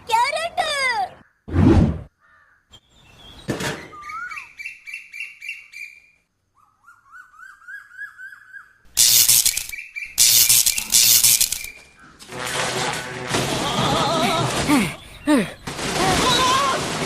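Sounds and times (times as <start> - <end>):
high bird-like chirps: 2.7 - 12.0.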